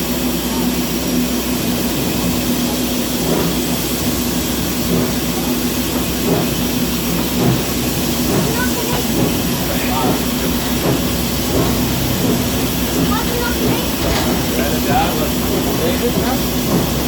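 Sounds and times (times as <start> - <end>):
steam locomotive hissing: 0.0 - 17.0.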